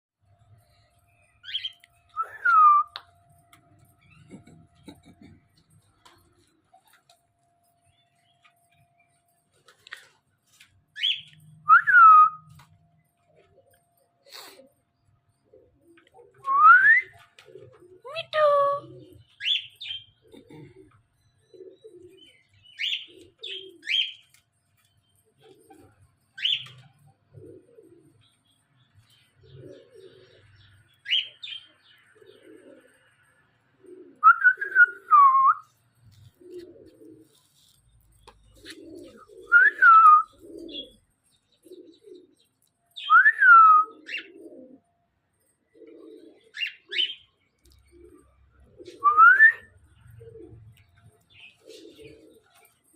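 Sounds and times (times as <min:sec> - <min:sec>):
soft low cooing: 0:04.2 - 0:05.7, 0:20.2 - 0:22.2.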